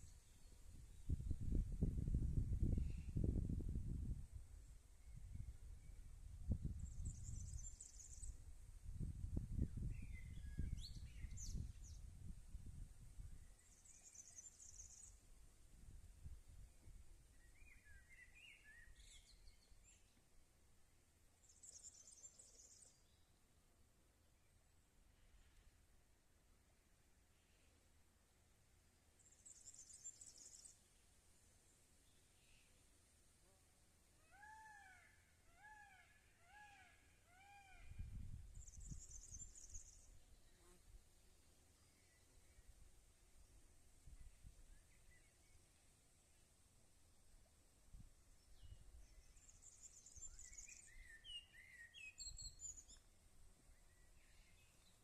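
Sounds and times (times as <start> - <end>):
small birds chirping: 6.8 - 8.4, 13.4 - 15.2, 21.4 - 23.3, 29.2 - 31.1, 38.5 - 40.8, 48.4 - 53.1.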